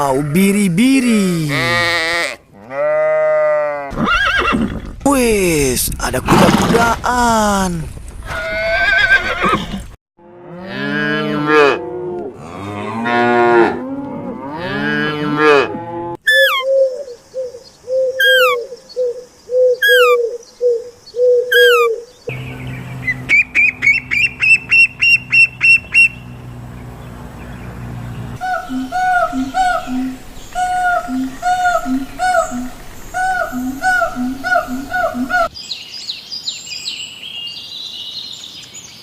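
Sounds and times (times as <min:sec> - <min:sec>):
cattle mooing: 0:10.2 - 0:16.2, 0:28.4 - 0:35.5
short repeated animal calls: 0:19.8 - 0:20.2, 0:21.5 - 0:22.0.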